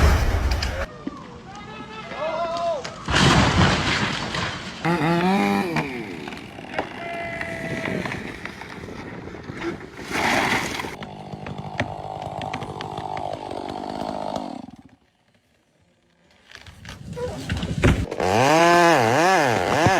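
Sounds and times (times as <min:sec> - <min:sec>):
chainsaw running: 0:04.8 - 0:07.1, 0:10.9 - 0:15.8, 0:18.0 - 0:19.9.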